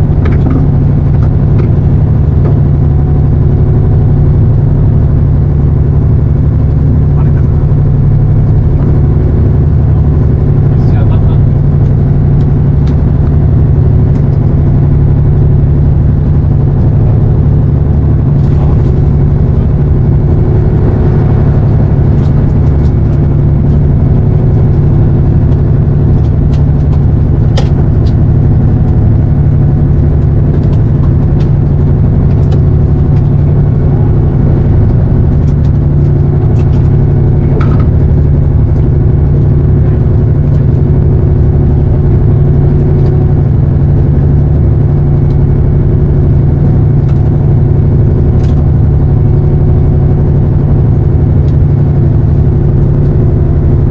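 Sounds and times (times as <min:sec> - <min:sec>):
boat engine droning: 0:00.0 - 0:53.9.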